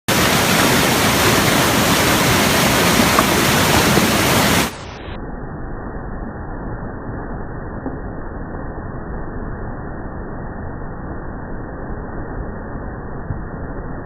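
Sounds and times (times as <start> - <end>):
rushing river water: 0.1 - 4.9.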